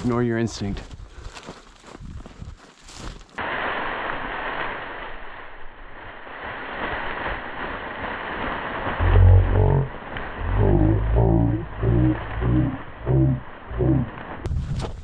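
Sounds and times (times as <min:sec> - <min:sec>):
footsteps crunching: 0:00.0 - 0:03.4, 0:09.0 - 0:15.0.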